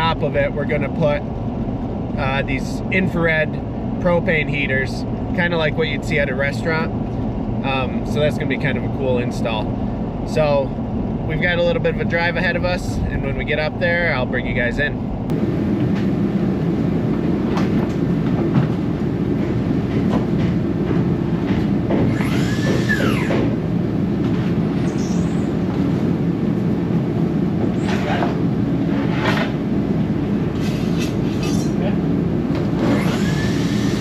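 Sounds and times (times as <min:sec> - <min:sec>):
vehicle engine and road noise: 0:00.0 - 0:34.0
rising-and-falling squeal: 0:22.0 - 0:23.6, 0:32.8 - 0:34.0.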